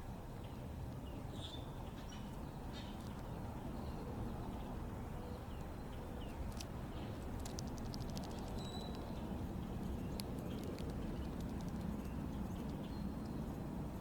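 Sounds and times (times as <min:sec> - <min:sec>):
low background rumble: 0:00.0 - 0:14.0
sharp clicks: 0:07.4 - 0:09.1, 0:10.1 - 0:13.4
bird chirps: 0:08.2 - 0:09.3.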